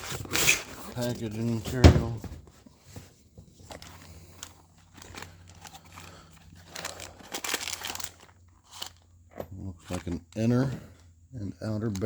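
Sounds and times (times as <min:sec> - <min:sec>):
packaging crumpled and torn: 0:03.7 - 0:09.0.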